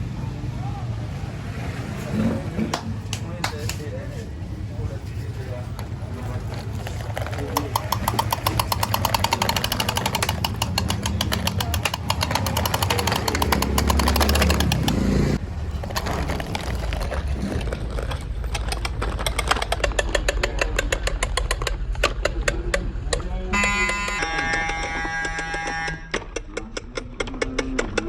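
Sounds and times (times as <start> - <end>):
tractor diesel engine chugging: 4.4 - 15.9.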